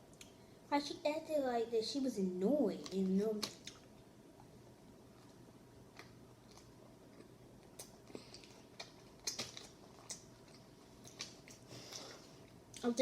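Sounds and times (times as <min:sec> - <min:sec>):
soft crunches of chewing: 0:02.8 - 0:13.0.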